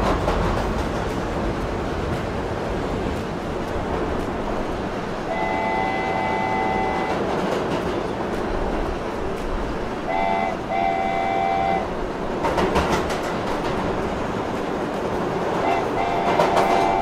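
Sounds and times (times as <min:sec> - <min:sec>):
train rumbling: 0:00.0 - 0:17.0
train horn blasts: 0:05.2 - 0:07.3, 0:10.0 - 0:12.0, 0:15.6 - 0:17.0.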